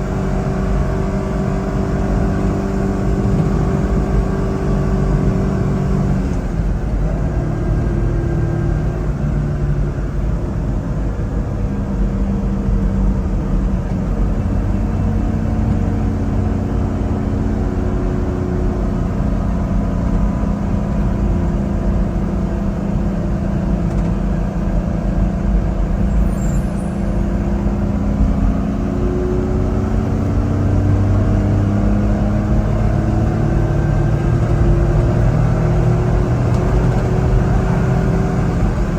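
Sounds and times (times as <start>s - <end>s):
road rumble: 0.0s - 38.9s
small truck engine running: 0.0s - 38.9s.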